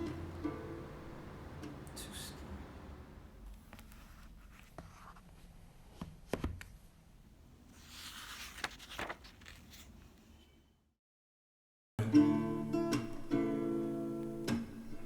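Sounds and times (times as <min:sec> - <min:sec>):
rustle and scrape: 0:07.8 - 0:10.0.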